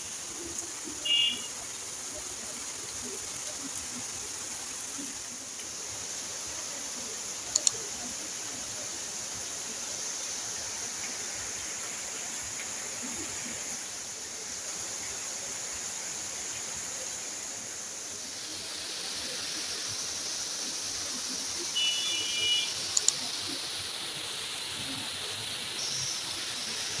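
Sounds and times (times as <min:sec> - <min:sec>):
steady rain hiss: 0:00.0 - 0:27.0
sharp clicks: 0:07.5 - 0:07.8.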